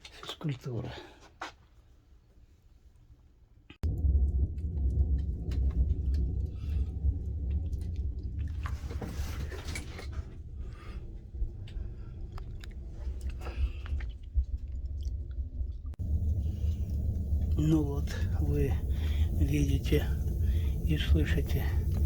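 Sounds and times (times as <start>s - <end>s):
hissing rush: 3.8s - 13.8s, 16.0s - 22.0s
burning wood crackles and snaps: 3.8s - 22.0s
wood stove fire drone: 3.8s - 22.0s.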